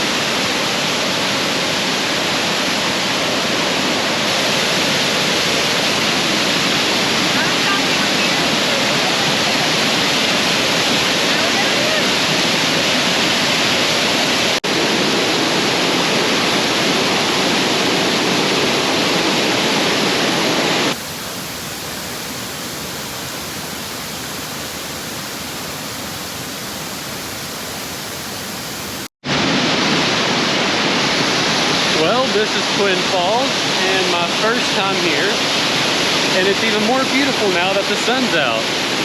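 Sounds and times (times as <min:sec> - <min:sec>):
waterfall pouring: 0:20.9 - 0:29.1.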